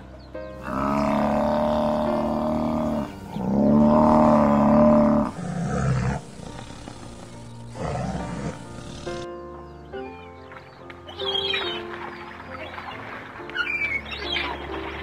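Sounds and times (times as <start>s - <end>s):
background music: 0.0s - 15.0s
buffalo bellowing: 0.6s - 9.3s.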